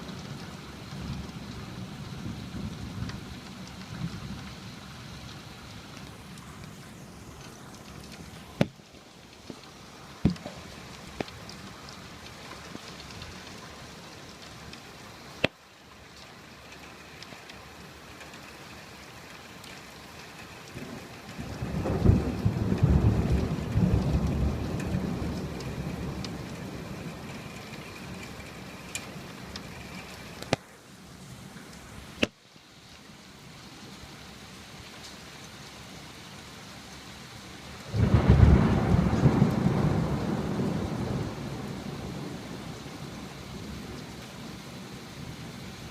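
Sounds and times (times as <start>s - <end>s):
steady rain: 0.0s - 45.9s
thunder rolling: 20.8s - 30.2s, 37.9s - 43.2s.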